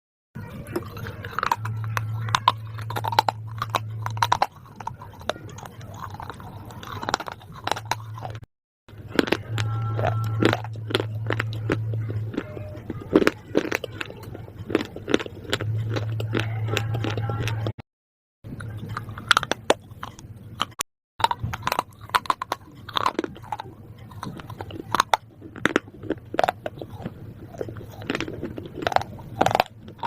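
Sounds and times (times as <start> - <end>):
crunchy food being chewed: 0.4 - 17.8, 18.5 - 30.0
low hum: 0.4 - 17.8.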